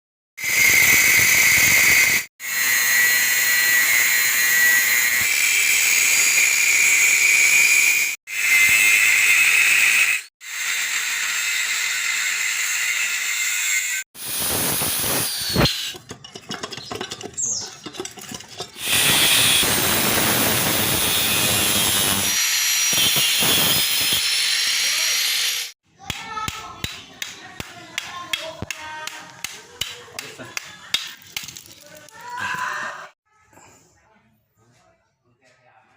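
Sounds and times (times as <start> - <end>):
gas hissing from pipe: 14.2 - 15.9, 18.8 - 22.4.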